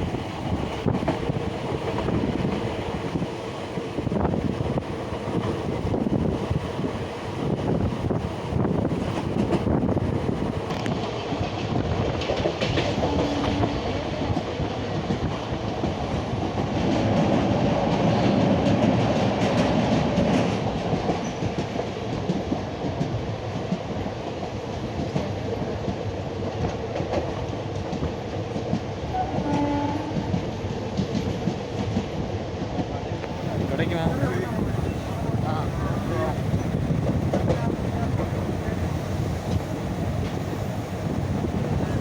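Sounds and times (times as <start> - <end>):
train rumbling on rails: 0.0 - 42.0.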